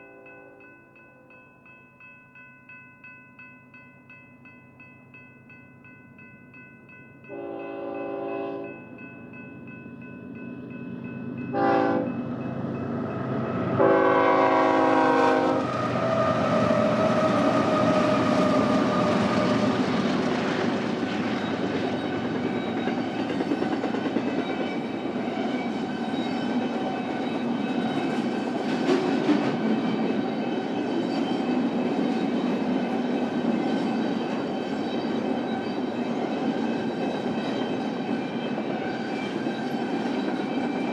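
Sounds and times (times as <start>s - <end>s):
locomotive horn blasts: 7.3s - 8.7s, 11.5s - 12.2s, 13.8s - 15.7s
freight train rumbling: 7.3s - 40.9s
wheels clacking on rails: 7.3s - 40.9s.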